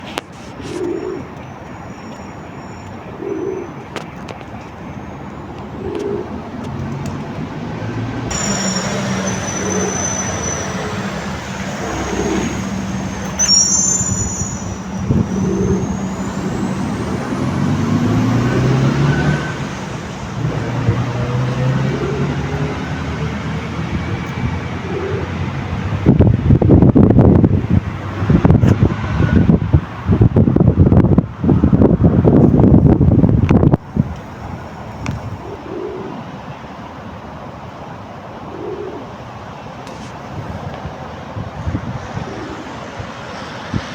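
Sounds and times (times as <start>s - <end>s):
low hum of traffic: 0.0s - 43.9s
pigeons cooing: 0.6s - 1.4s, 3.0s - 3.9s, 5.6s - 6.9s, 9.2s - 23.7s, 24.5s - 25.6s, 35.4s - 36.2s, 38.5s - 39.1s, 42.1s - 42.8s.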